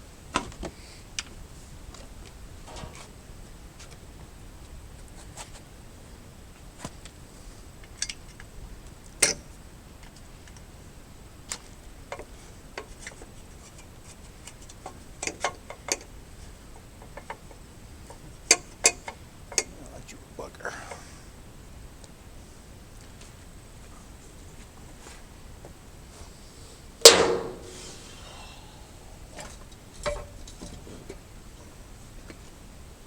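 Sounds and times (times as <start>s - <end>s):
sharp clicks and knocks: 27.1s - 27.8s.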